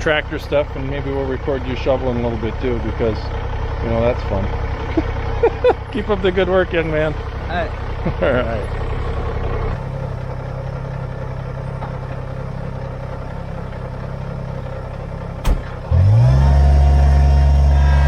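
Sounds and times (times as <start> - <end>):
diesel tractor engine running: 0.0 - 18.0
sharp click: 15.4 - 15.8.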